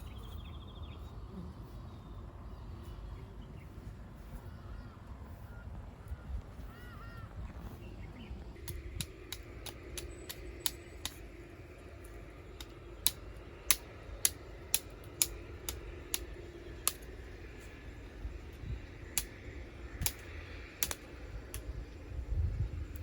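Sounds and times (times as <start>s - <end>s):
faint steady hum: 0.0s - 23.0s
sharp clicks and snaps: 8.6s - 17.6s, 19.1s - 21.8s.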